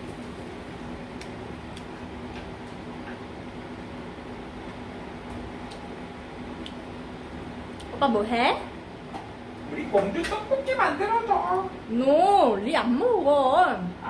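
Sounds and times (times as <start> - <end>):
fan whirring hum: 0.0 - 14.0.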